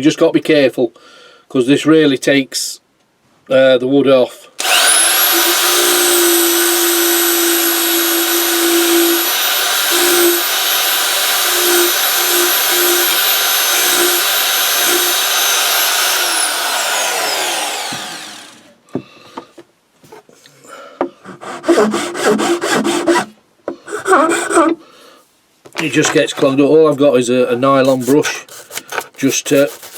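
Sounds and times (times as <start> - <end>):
belt sander motor whining: 4.6 - 18.8
rubbing and scraping strokes: 21.2 - 24.8, 27.4 - 29.9.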